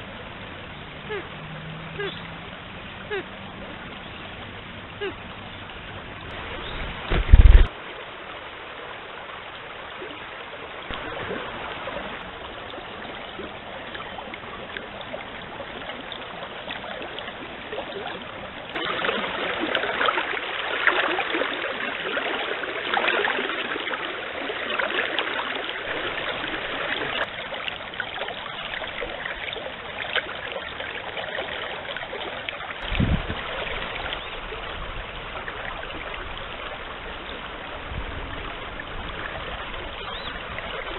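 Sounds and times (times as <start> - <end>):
forest stream running: 0.0 - 40.9
loud short low thump: 6.8 - 7.7.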